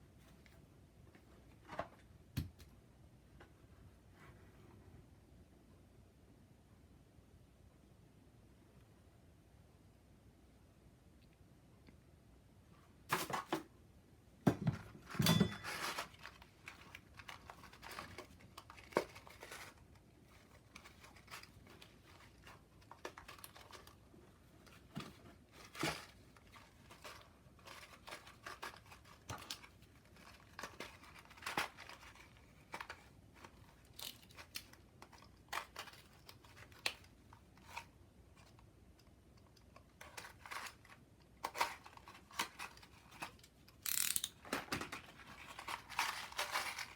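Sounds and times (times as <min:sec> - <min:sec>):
crinkling and tearing rustles: 0:15.7 - 0:38.7, 0:39.7 - 0:46.9.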